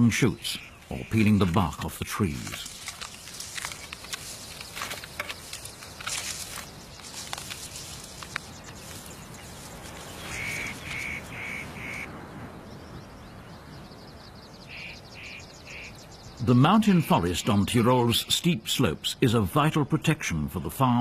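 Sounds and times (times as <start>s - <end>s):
snapping and crackling: 1.1s - 11.4s
bird short calls: 10.0s - 12.1s.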